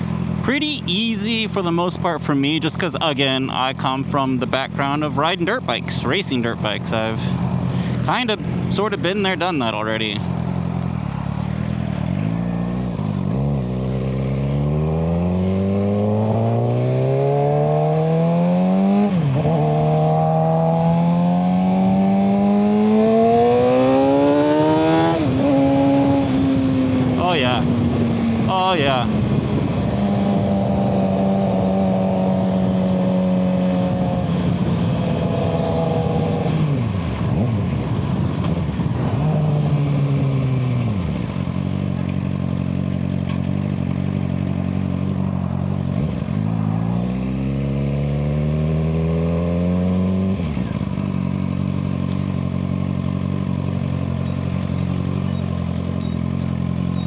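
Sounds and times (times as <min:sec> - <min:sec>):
motorcycle engine running: 0:00.0 - 0:57.0
wind noise: 0:23.3 - 0:40.4.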